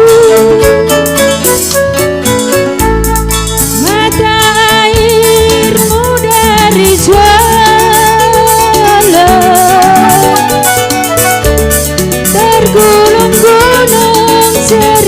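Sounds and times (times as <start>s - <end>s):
person singing with vibrato: 0.0s - 1.2s, 3.7s - 10.9s, 12.2s - 15.0s
instrumental accompaniment: 0.0s - 15.0s.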